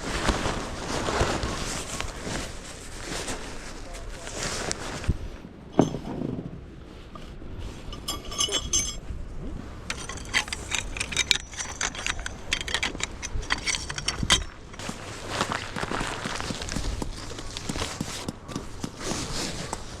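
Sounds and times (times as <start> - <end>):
metal gear knocking: 7.9 - 9.0, 9.9 - 15.0
metallic clinking and jangling: 7.9 - 9.0, 9.8 - 15.1.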